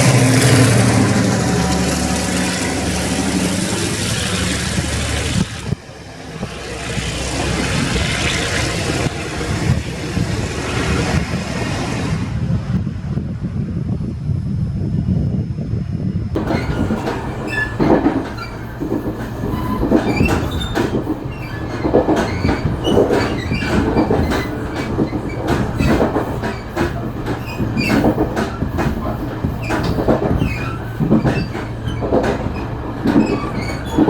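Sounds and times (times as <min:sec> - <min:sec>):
freight train wagons rumbling: 0:00.0 - 0:34.0
high wheel squeals: 0:16.4 - 0:34.0
wheels clattering over rail joints: 0:16.4 - 0:34.0.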